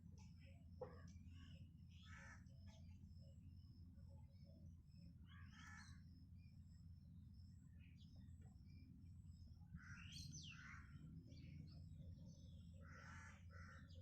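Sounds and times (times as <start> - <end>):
crows cawing: 2.0 - 2.4, 5.4 - 6.0, 12.8 - 13.9.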